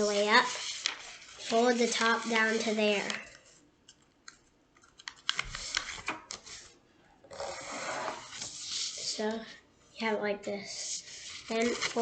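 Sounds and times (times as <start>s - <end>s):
paper rubbing into crease: 0.0s - 3.1s, 7.4s - 9.2s, 10.7s - 12.0s
paper crackling: 0.0s - 3.5s, 11.2s - 12.0s.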